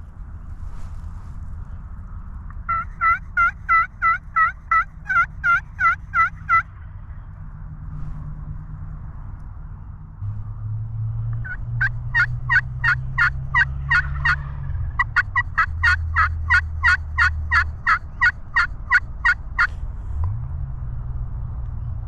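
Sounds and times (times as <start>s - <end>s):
low steady hum: 0.0s - 22.0s
wild turkey yelping: 2.7s - 7.1s, 11.4s - 19.7s.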